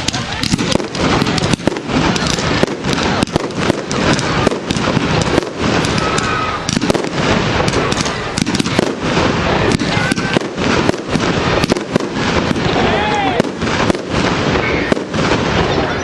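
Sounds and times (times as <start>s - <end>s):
fireworks banging and crackling: 0.0s - 16.0s
faint firework whistle: 5.7s - 7.1s.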